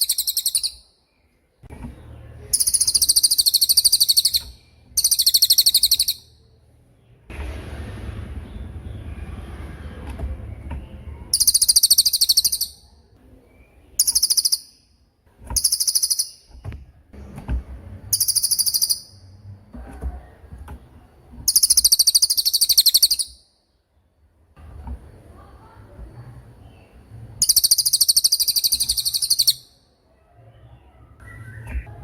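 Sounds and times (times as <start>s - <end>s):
bird high-pitched trilling song: 0.0s - 1.2s, 2.4s - 6.4s, 11.3s - 15.0s, 15.6s - 16.6s, 18.1s - 19.4s, 21.5s - 23.6s, 26.7s - 29.9s.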